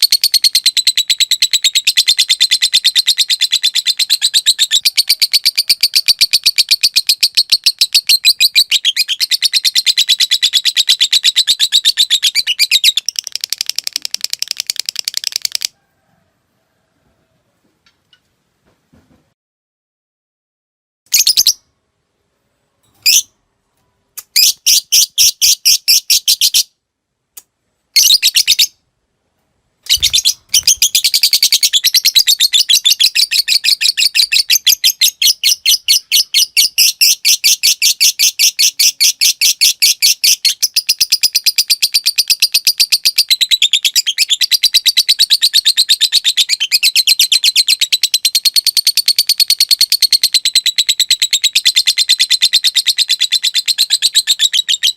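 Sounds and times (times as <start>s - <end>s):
lovebird rattling chatter: 29.9s - 33.0s.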